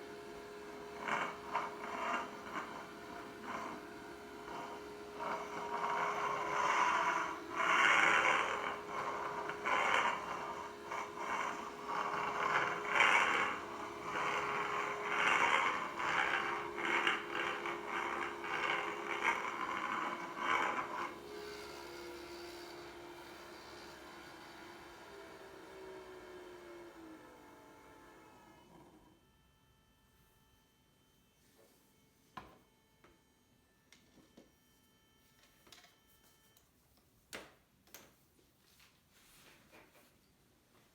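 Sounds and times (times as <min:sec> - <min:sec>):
scraping noises: 0:04.5 - 0:21.2.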